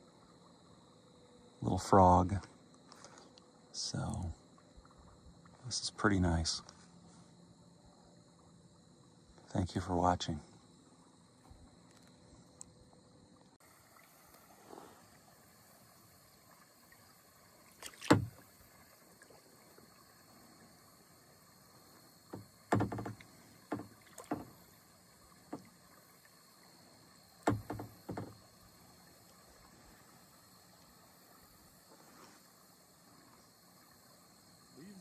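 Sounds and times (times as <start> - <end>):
kayak paddle splashes: 10.6 - 35.0
paddle knocks against boat: 17.8 - 18.5, 22.3 - 24.8, 25.4 - 25.8, 27.4 - 28.4.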